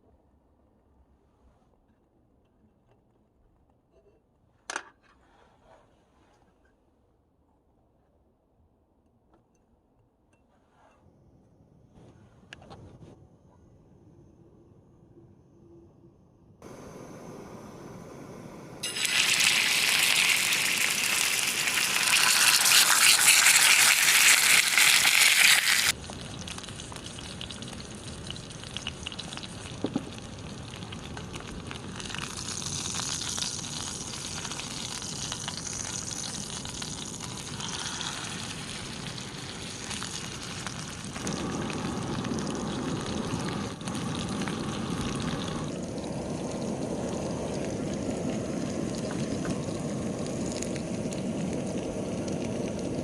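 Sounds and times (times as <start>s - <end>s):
food sizzling in a pan: 18.8s - 30.7s, 31.8s - 53.0s.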